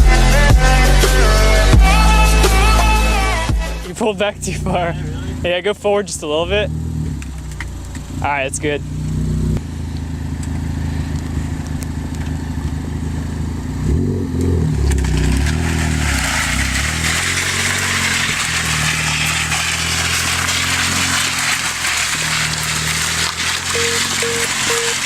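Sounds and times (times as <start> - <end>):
car engine revving: 0.2 - 25.0
trays scraping on pavement: 14.7 - 25.0.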